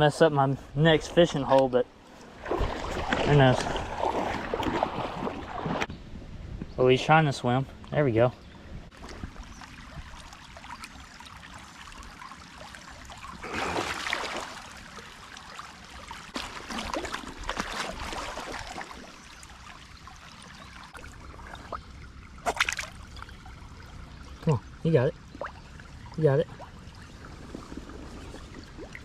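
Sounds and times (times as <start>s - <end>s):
creek water running: 0.0s - 5.9s, 8.9s - 29.0s
fish splashing in shallows: 2.2s - 5.9s, 9.0s - 24.0s.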